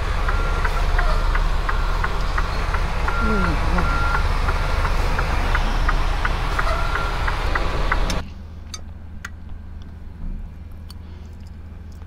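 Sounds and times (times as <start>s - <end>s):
truck diesel engine idling: 0.0s - 9.3s.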